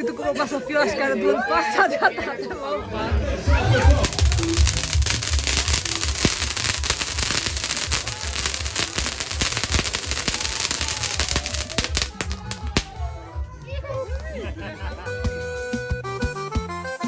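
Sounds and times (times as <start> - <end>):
firework crackling: 3.5 - 13.1.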